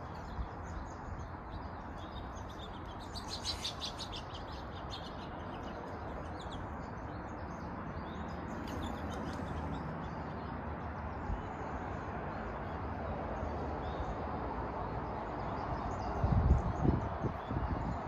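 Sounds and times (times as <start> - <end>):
birds chirping: 0.0 - 14.3
steady outdoor rushing noise: 0.0 - 18.0.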